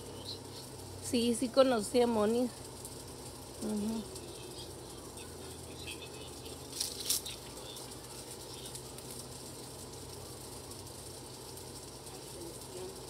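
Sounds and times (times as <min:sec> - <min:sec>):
songbirds chirping faintly: 0:00.0 - 0:13.0
steady low hum: 0:00.0 - 0:13.0
bird wingbeats: 0:05.5 - 0:10.4.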